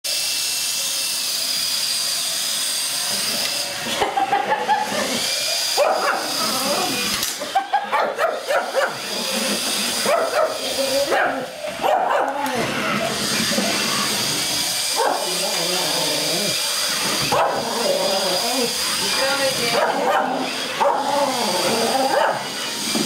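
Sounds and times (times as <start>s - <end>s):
electric motor whine: 0.1s - 23.0s
dog barking: 5.8s - 6.4s, 7.9s - 9.0s, 10.0s - 12.5s, 15.0s - 15.4s, 17.3s - 17.6s, 19.8s - 21.1s, 22.1s - 22.4s.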